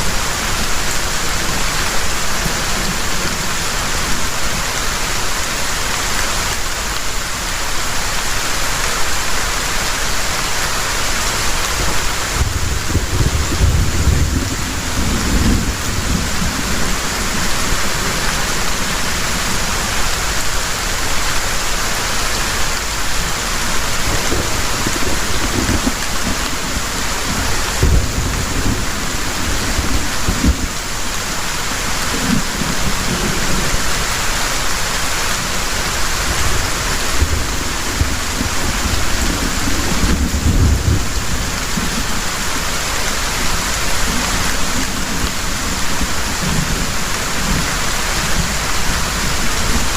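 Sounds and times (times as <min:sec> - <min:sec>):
heavy rain pouring: 0:00.0 - 0:49.9
thunder rumbling: 0:11.6 - 0:20.0, 0:23.2 - 0:34.1, 0:35.4 - 0:42.3.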